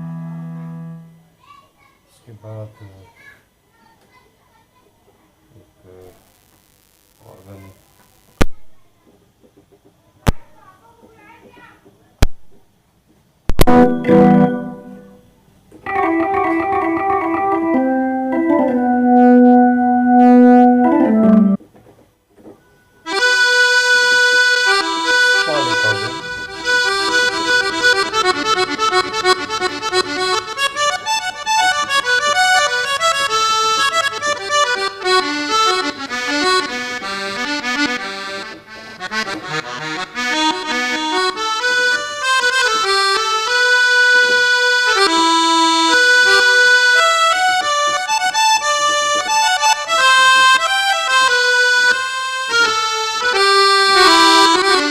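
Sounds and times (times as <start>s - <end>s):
keyboard melody with fast runs: 13.6s - 15.2s, 15.8s - 21.6s, 23.1s - 54.9s.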